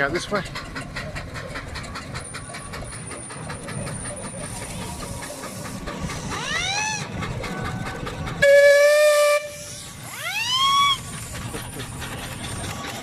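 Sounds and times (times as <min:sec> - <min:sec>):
low rumble of engines: 0:00.0 - 0:13.0
steam whistles: 0:08.4 - 0:11.4.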